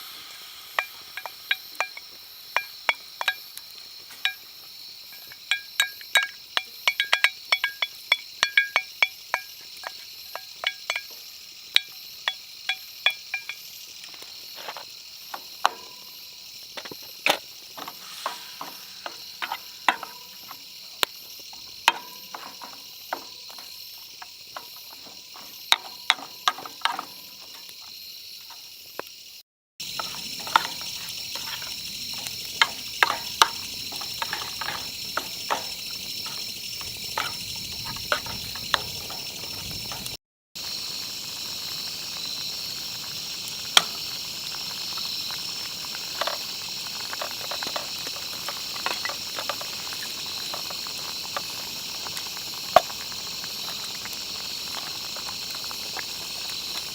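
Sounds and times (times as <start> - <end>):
campfire popping and crackling: 0.0 - 56.9
food sizzling in a pan: 0.0 - 56.9.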